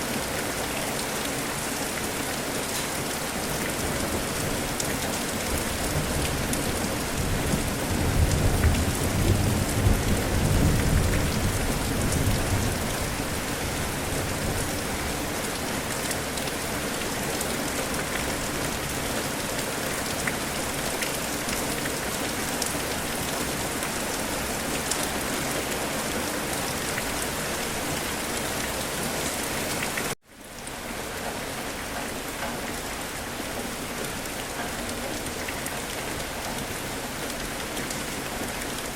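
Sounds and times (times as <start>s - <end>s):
heavy rain falling: 0.0s - 38.9s
thunder rumbling: 5.9s - 14.8s.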